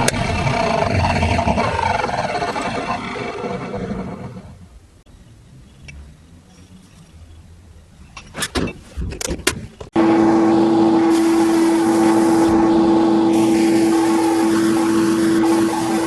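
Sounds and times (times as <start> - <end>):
workshop machine running: 10.0 - 16.0.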